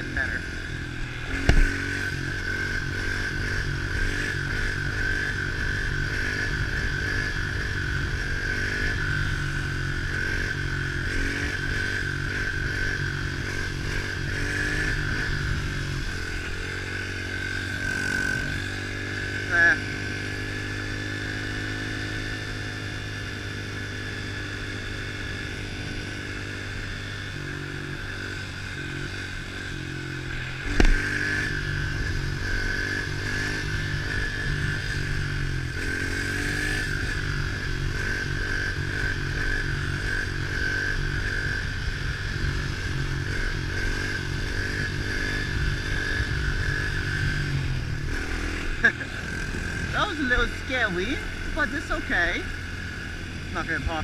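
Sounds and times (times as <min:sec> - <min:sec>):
motorbike engine running: 0:00.0 - 0:54.0
sharp knock: 0:01.4 - 0:01.8.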